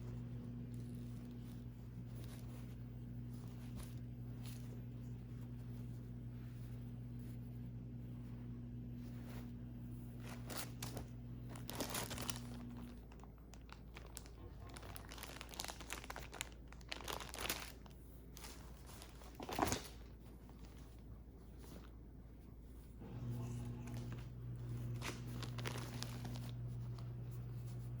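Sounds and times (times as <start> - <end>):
low steady hum: 0.0 - 28.0
plastic packaging crinkling: 10.2 - 21.9, 23.8 - 27.3.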